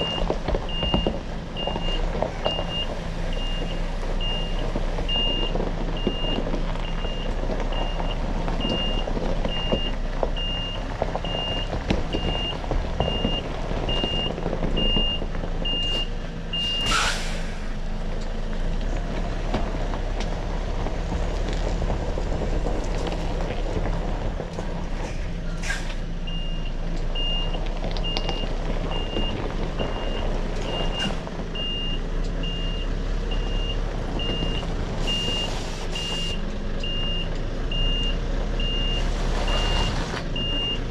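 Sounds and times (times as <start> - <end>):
diesel engine running: 0.0 - 40.9
air brake hiss: 16.6 - 17.8, 25.1 - 26.0
reversing alarm beeping: 26.3 - 40.8.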